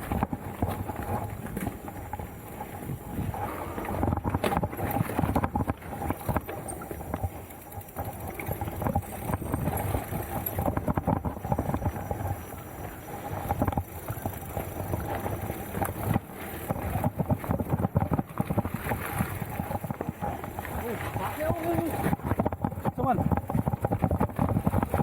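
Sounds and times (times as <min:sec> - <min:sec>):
bike tyres rumbling on rocky trail: 0:00.0 - 0:25.0
bike frame knocking and rattling: 0:04.0 - 0:12.6, 0:21.4 - 0:25.0.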